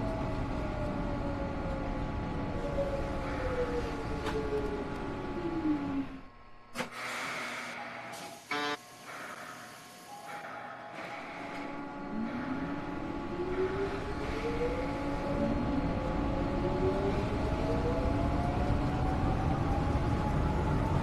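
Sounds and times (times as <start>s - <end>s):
subway train motor whine: 0.0s - 21.0s
train running rumble: 10.4s - 21.0s.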